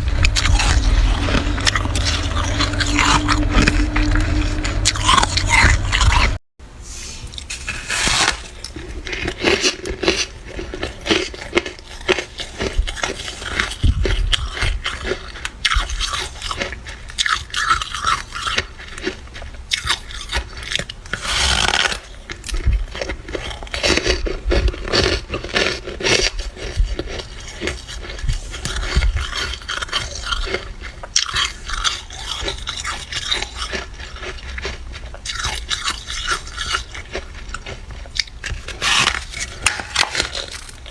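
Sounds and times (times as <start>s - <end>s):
frost crunching while chewed: 0.0s - 6.4s, 7.2s - 40.9s
scraping: 0.0s - 6.4s.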